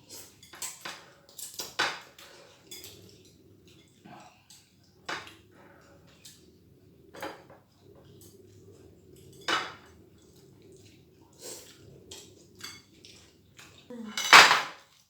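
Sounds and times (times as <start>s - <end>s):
cutlery clinking on plates: 0.1s - 5.4s, 14.2s - 15.0s.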